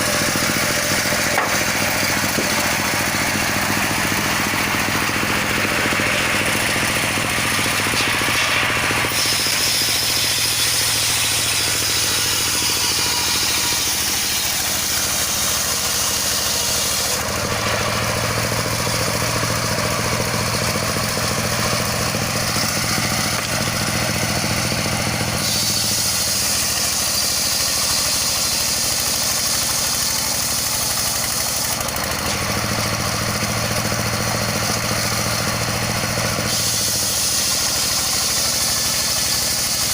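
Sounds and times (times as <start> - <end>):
circular sawmill running: 0.0 - 39.9
high saw whine: 0.0 - 39.9.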